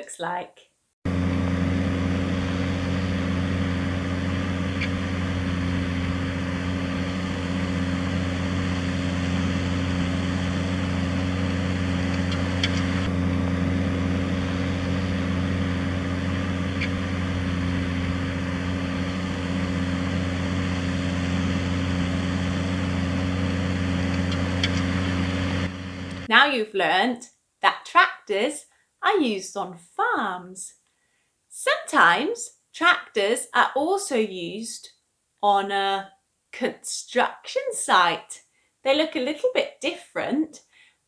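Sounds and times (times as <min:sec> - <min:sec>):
tractor engine droning: 0:01.1 - 0:26.3.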